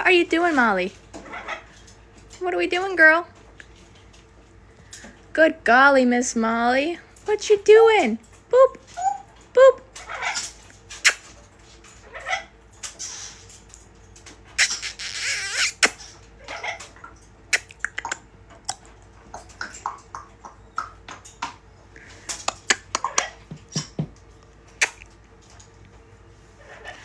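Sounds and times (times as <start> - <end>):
parrot clicks and chirps: 14.6 - 16.1, 17.5 - 18.8, 24.8 - 25.1
parrot harsh hissing squawk: 14.6 - 16.1.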